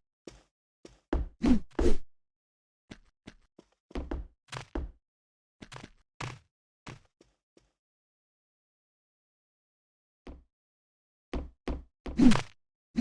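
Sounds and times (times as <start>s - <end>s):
dull knocks and thwacks: 12.1s - 12.5s.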